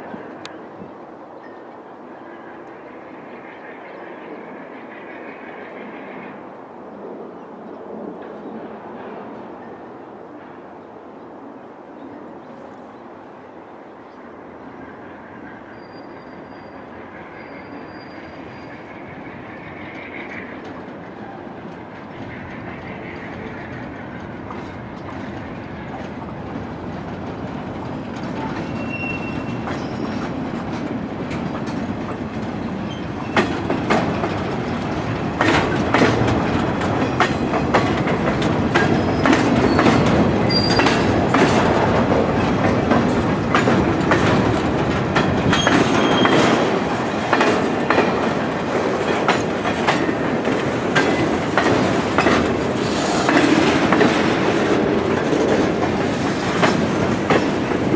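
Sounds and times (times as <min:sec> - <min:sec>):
train wheels clacking over rails: 0:14.9 - 0:57.9
high wheel squeals: 0:15.7 - 0:18.9, 0:28.6 - 0:30.2, 0:39.1 - 0:41.1.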